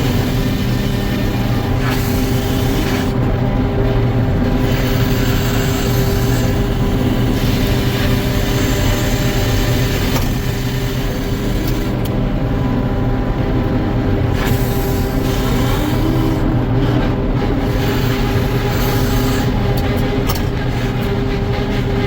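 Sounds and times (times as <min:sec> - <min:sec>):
sawmill machinery droning: 0:00.0 - 0:22.0.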